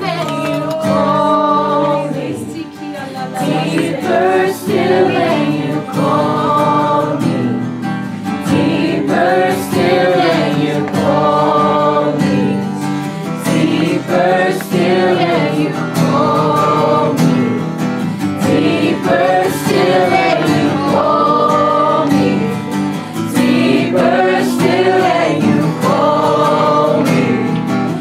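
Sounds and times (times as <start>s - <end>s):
instrumental accompaniment: 0.0s - 28.0s
voices singing: 0.0s - 28.0s.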